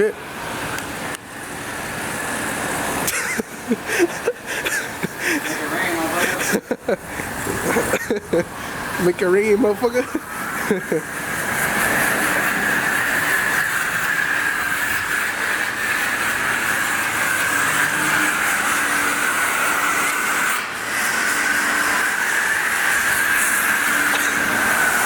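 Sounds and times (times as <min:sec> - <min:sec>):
pressure washer spraying water: 0:00.0 - 0:25.0.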